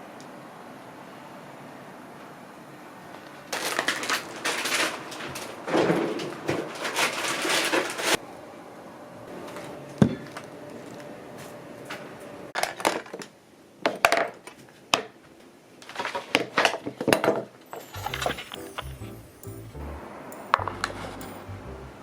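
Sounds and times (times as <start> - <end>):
rustling of objects: 3.5 - 8.2.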